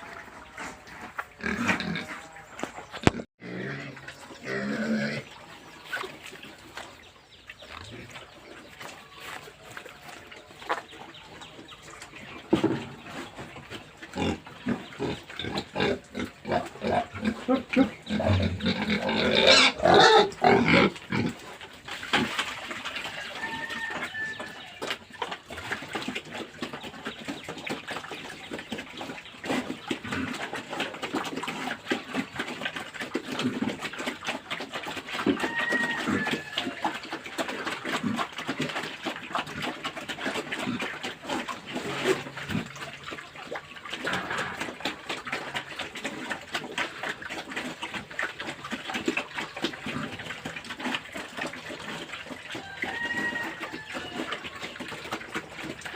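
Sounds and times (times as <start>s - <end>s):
pigs squealing: 0.0s - 6.4s, 13.8s - 26.5s, 29.0s - 55.9s
pigs grunting: 0.0s - 7.0s, 7.6s - 55.9s.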